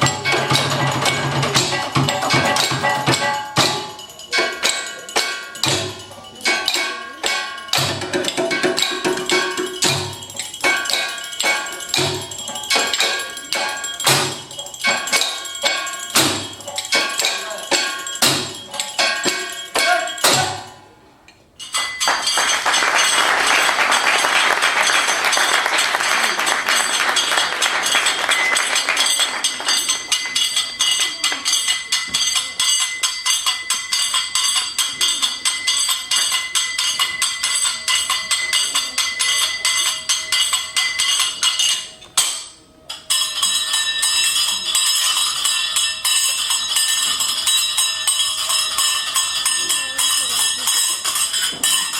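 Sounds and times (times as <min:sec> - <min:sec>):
heavy percussion hits: 0:00.0 - 0:20.9
metallic ringing tones: 0:00.0 - 0:51.9.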